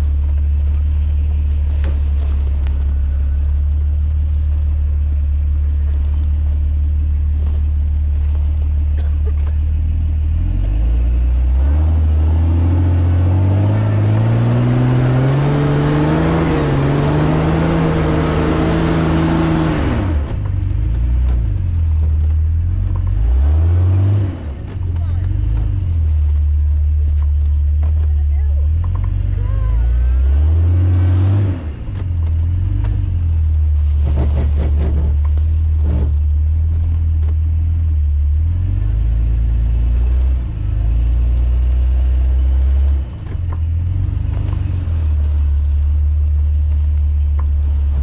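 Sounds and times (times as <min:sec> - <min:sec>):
vehicle engine idling and revving: 0:00.0 - 0:48.0.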